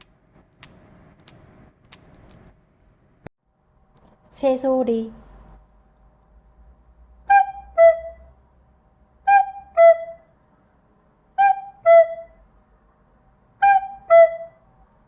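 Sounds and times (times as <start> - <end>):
wind instrument cuckoo call: 7.3 - 8.3, 9.2 - 10.3, 11.4 - 12.4, 13.6 - 14.6.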